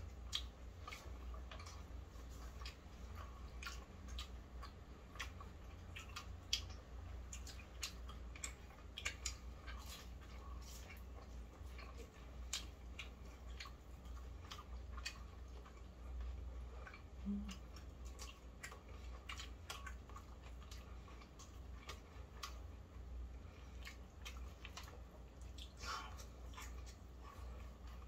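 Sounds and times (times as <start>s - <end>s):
chewing crunches: 0.0s - 28.0s
steady low hum: 0.0s - 28.0s.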